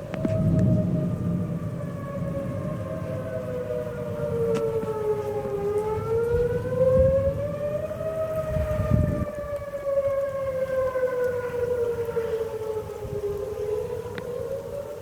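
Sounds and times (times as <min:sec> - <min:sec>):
warning siren wailing: 0:00.0 - 0:15.0
wind rumbling on microphone: 0:00.0 - 0:15.0.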